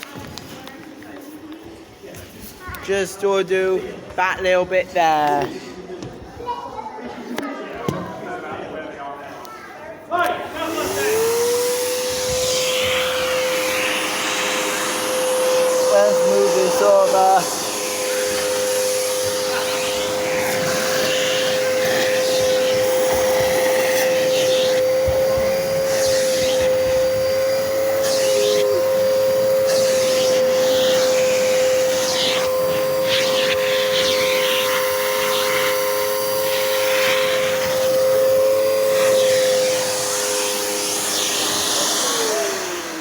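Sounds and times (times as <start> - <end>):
vacuum cleaner motor whine: 10.2 - 43.0
air rushing over carpet: 10.7 - 40.8.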